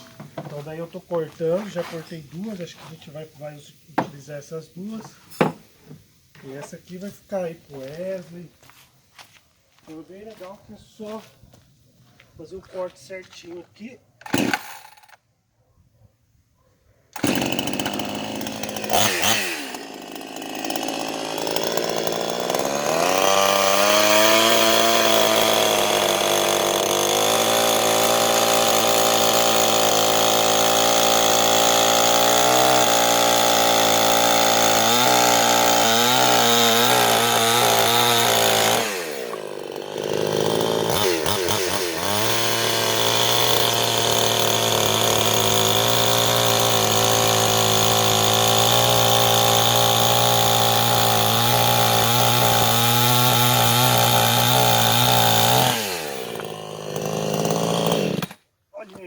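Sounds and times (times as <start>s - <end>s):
chainsaw revving and cutting log: 0.0s - 2.9s, 14.2s - 15.2s, 17.2s - 59.0s.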